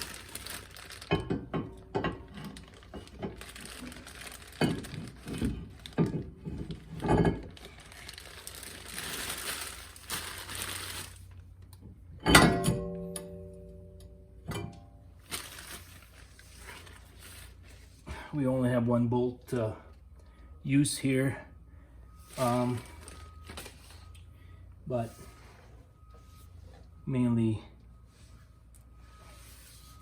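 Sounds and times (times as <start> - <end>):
brake rotor clanking and ringing: 12.2 - 15.1.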